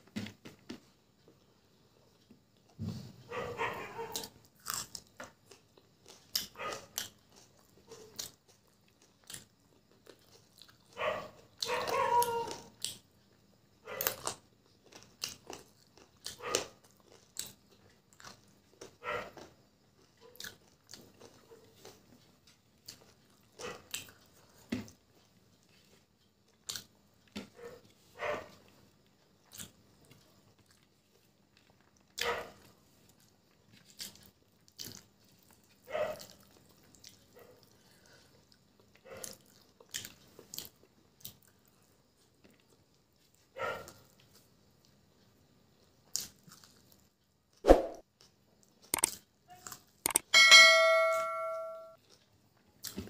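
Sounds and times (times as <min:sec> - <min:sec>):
person chewing food: 0:03.6 - 0:13.0, 0:14.0 - 0:28.0, 0:28.7 - 0:45.0, 0:45.8 - 0:50.3, 0:52.0 - 0:53.0
longer pitched mouth sound: 0:47.7 - 0:48.0.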